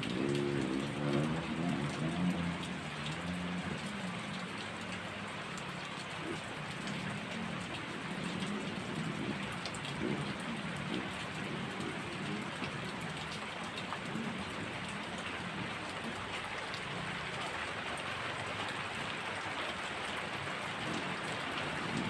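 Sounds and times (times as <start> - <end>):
heavy rain hiss: 0.0 - 22.0
raindrops ticking on surfaces: 0.0 - 22.0.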